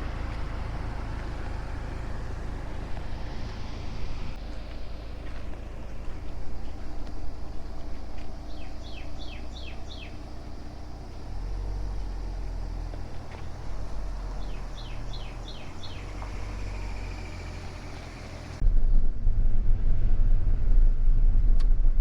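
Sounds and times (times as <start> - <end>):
steady low rumble: 0.0 - 22.0
bird whistling downward notes: 8.5 - 10.3, 14.0 - 18.6.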